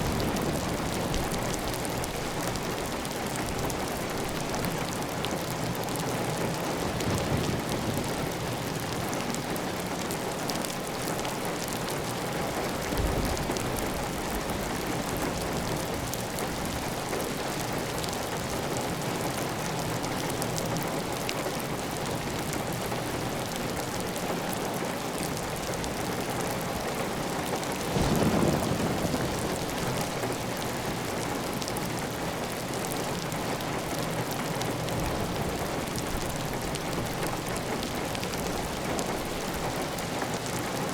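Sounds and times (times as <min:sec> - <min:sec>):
heavy rain on a tiled roof: 0:00.0 - 0:40.9.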